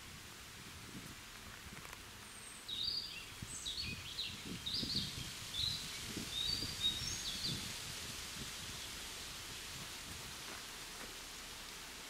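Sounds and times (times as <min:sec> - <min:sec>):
songbird singing: 0:02.2 - 0:07.8.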